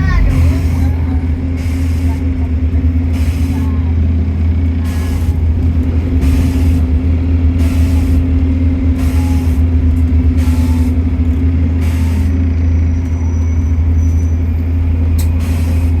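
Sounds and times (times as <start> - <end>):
constant hum: 0.0 - 12.5
bus engine drone: 0.0 - 16.0.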